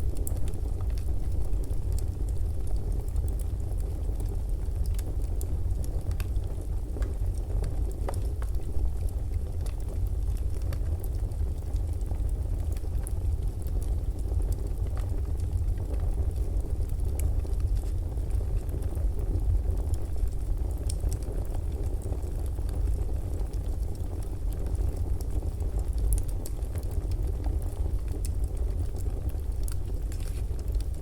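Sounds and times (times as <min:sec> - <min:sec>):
fire crackles and pops: 0:00.0 - 0:31.0
low rumble of flames: 0:00.0 - 0:31.0.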